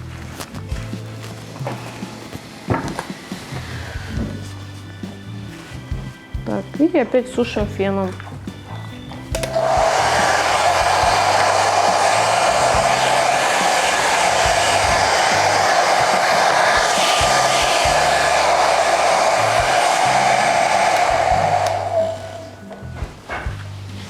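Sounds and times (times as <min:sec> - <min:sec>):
hair dryer blowing with whine: 0:01.5 - 0:05.2, 0:09.3 - 0:23.0.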